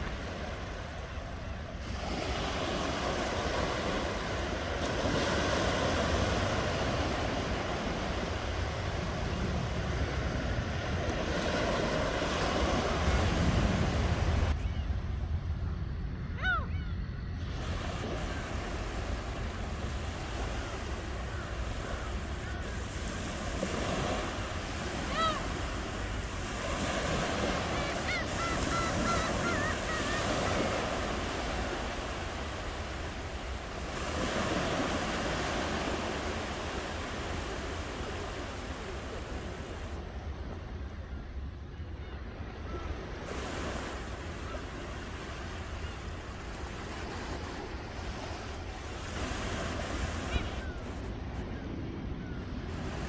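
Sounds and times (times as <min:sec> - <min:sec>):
low wind rumble: 0:00.0 - 0:53.0
ocean waves washing ashore: 0:00.0 - 0:53.0
bird calls: 0:20.0 - 0:38.5.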